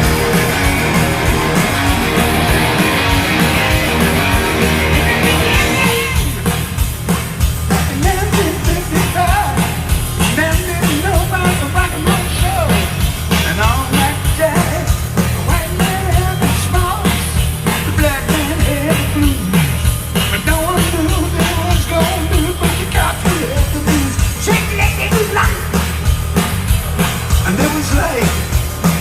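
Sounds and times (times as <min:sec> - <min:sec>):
loud rock music: 0:00.0 - 0:29.0
person singing: 0:03.9 - 0:06.5, 0:07.7 - 0:25.8, 0:27.4 - 0:28.5.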